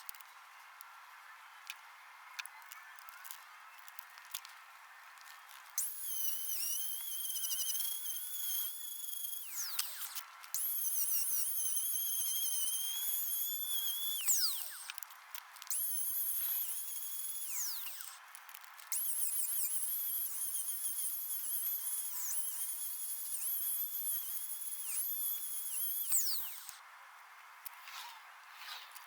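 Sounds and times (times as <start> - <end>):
power tool motor whining: 5.5 - 15.0, 15.6 - 18.2, 18.9 - 26.8.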